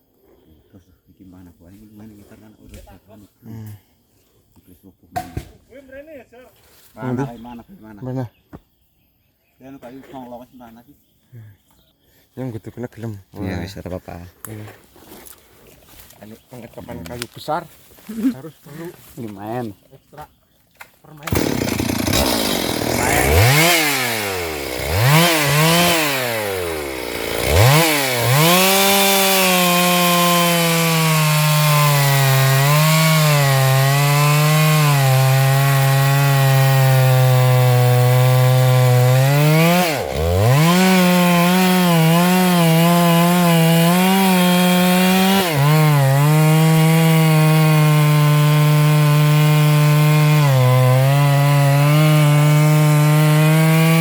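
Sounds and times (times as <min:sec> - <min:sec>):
chainsaw cutting wood: 0:21.2 - 0:54.0.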